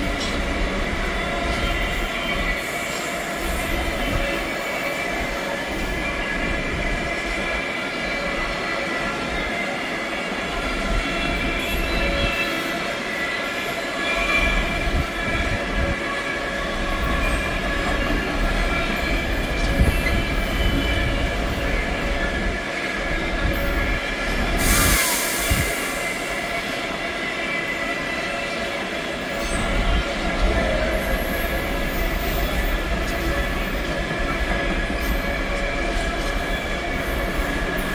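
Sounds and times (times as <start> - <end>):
train rumble with high whine: 0.0 - 37.9
burst of hiss: 24.6 - 26.3.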